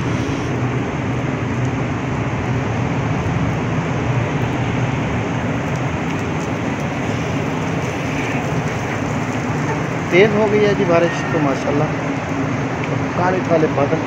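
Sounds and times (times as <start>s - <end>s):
heavy rain on pavement: 0.0s - 14.0s.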